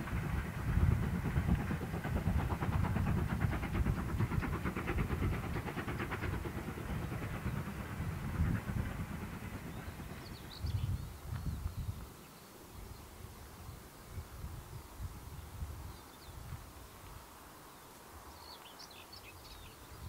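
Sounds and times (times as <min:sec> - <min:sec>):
train rumbling: 0:00.0 - 0:12.2.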